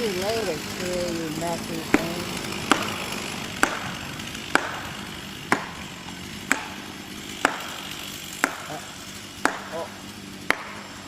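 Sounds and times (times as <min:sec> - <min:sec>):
maul striking metal wedges: 0:08.4 - 0:09.9.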